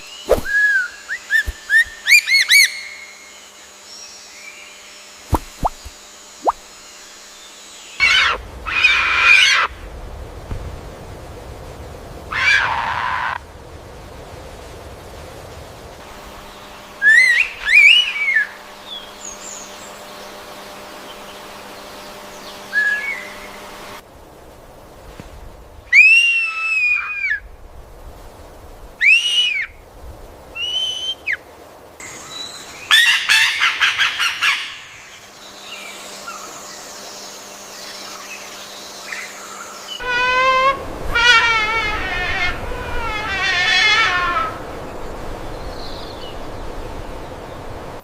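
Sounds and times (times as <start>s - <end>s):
rapid run of bird notes: 5.2s - 6.6s
gliding whistled bird notes: 5.3s - 6.6s, 16.9s - 20.0s, 22.2s - 23.6s, 30.5s - 31.4s
squawk-like bird calls: 39.1s - 44.6s.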